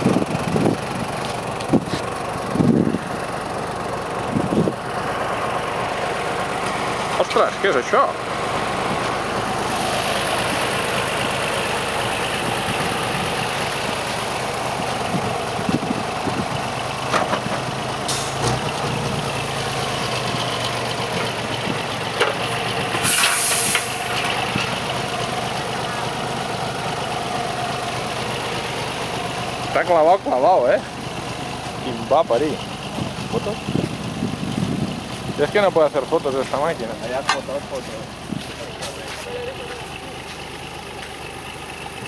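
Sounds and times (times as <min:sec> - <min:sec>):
car engine running: 0:00.0 - 0:42.0
brief hiss: 0:23.0 - 0:24.0.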